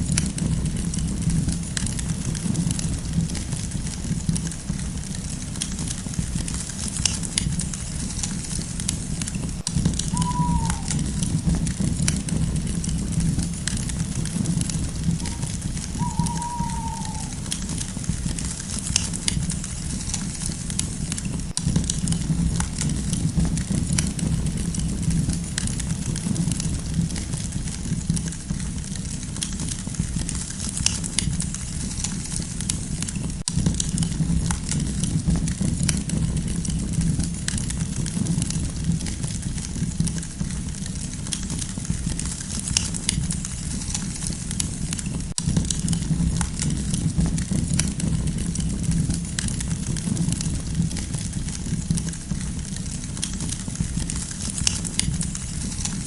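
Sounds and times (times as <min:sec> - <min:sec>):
steady low rumble: 0:00.0 - 0:28.0
campfire crackling and popping: 0:00.0 - 0:56.0.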